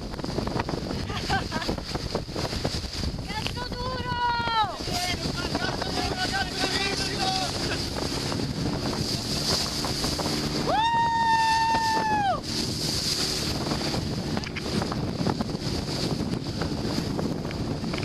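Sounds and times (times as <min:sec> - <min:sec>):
water rushing along boat: 0:00.0 - 0:18.0
wind buffeting microphone: 0:00.0 - 0:18.0
person yelling: 0:03.6 - 0:07.8, 0:10.7 - 0:12.4.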